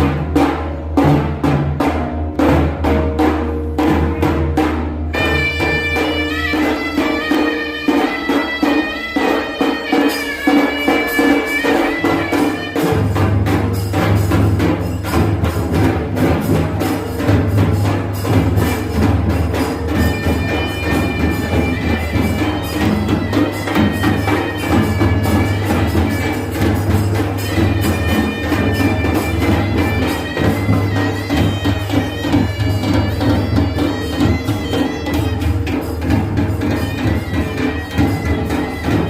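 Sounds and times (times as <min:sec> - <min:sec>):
drums beating fast rhythm: 0:00.0 - 0:39.0
reedy wind instrument melody: 0:05.1 - 0:15.2, 0:16.8 - 0:39.0.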